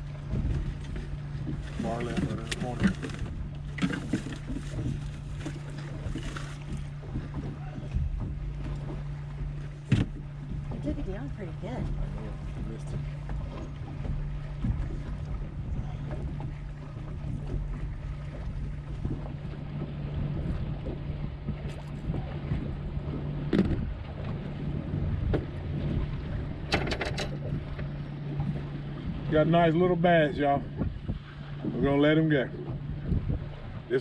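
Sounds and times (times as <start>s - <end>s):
choppy water against boat: 0.0s - 34.0s
wind buffeting microphone: 0.0s - 34.0s
sharp knocks and clicks: 7.4s - 10.6s, 23.5s - 23.9s, 26.7s - 28.6s.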